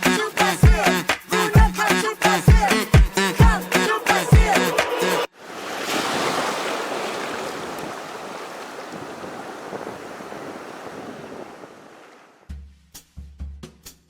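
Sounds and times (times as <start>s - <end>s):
ocean wave breaking: 3.8s - 12.4s.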